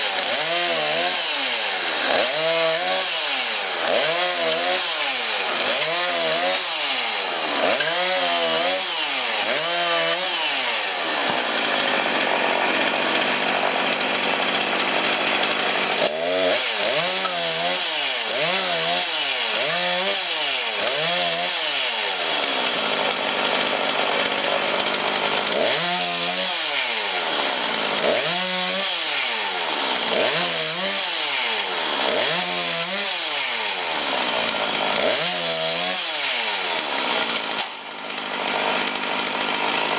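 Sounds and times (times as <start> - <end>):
chainsaw cutting logs: 0.0 - 39.9.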